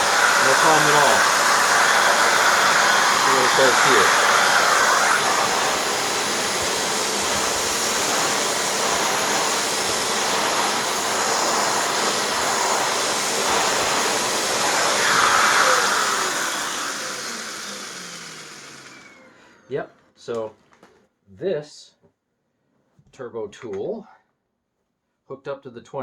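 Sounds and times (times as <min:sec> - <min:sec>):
spinning turbine tool: 0:00.0 - 0:19.4
vacuum cleaner suction: 0:00.0 - 0:19.8
vacuum motor winding down: 0:00.0 - 0:19.8.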